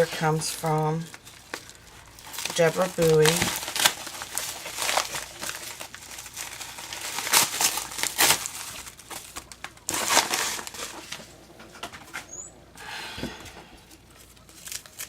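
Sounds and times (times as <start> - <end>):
plastic sleeves crinkling: 0.0 - 12.6, 13.8 - 15.0.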